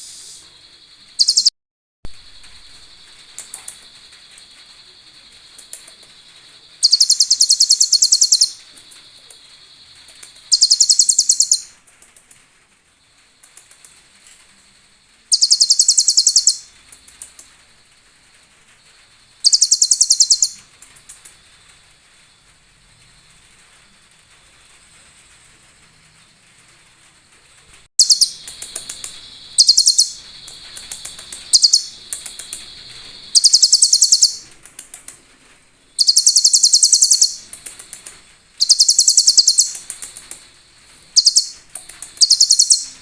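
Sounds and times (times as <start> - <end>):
bird high-pitched rapid trill: 0.7 - 1.5, 2.3 - 11.8, 15.3 - 16.8, 19.4 - 20.6, 28.0 - 34.5, 36.0 - 37.9, 38.6 - 40.2, 41.1 - 43.0
faint steady high tone: 28.0 - 34.5.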